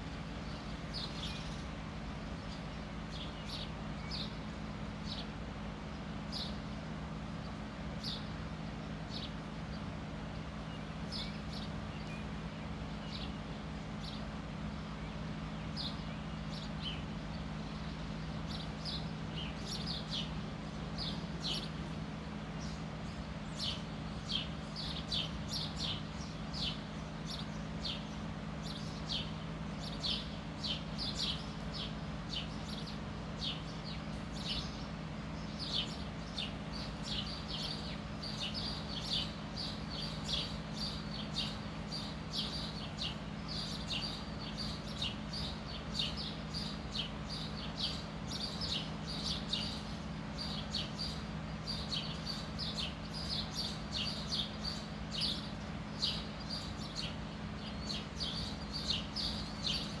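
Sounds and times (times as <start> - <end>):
small bird chirping: 0.0 - 6.7, 7.4 - 60.0
steady low hum: 0.0 - 60.0.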